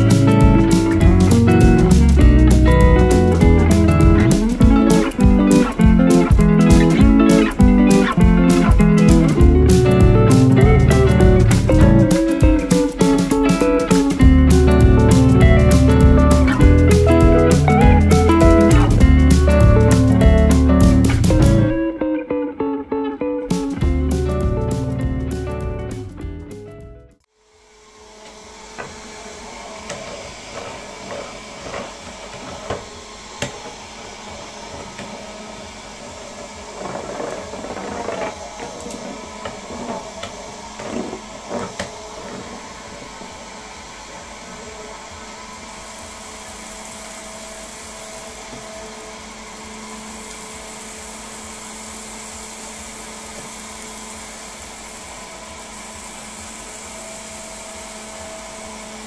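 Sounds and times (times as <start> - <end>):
small motor whining: 27.4 - 59.0.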